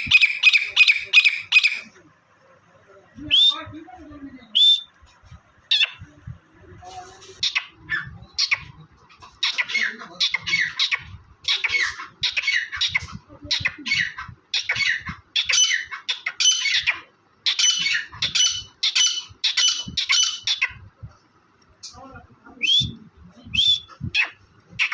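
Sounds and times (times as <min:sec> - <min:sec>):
partridge harsh calls: 0:00.0 - 0:01.9.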